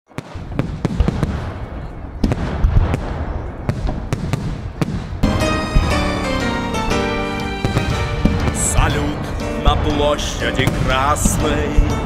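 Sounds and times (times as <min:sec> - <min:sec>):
fireworks bursting with bangs: 0:00.1 - 0:12.0
music: 0:05.2 - 0:12.0.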